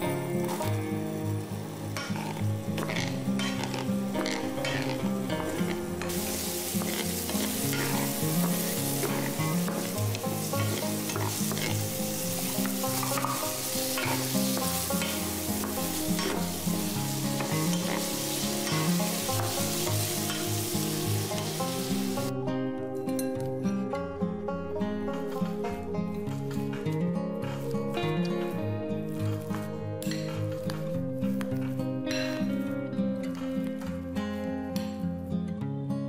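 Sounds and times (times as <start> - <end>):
onion sizzling in hot oil: 0.0 - 22.3.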